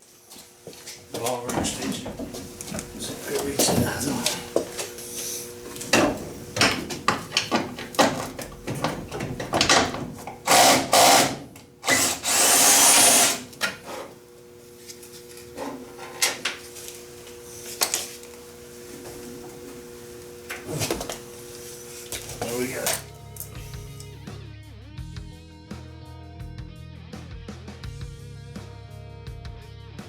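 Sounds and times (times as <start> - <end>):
power driver whining: 1.0 - 24.2.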